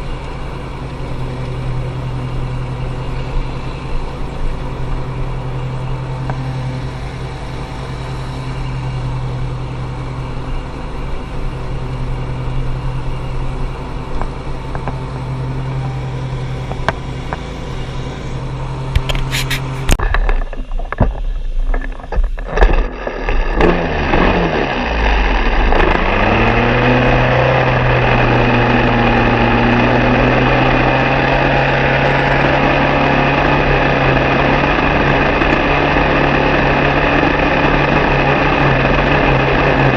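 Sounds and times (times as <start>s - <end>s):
engine running: 0.0s - 39.9s
engine starting and revving: 22.1s - 39.9s.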